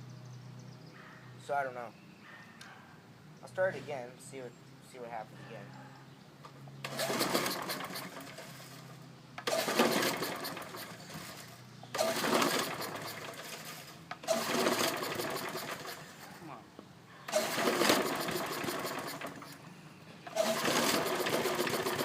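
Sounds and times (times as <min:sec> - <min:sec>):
lawn mower engine pull-start clatter: 0:06.8 - 0:16.2, 0:17.3 - 0:22.0.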